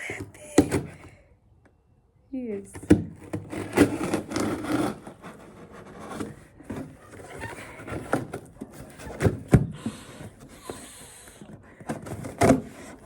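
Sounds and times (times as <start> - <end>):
packaging rubbing and rustling: 3.2 - 13.0.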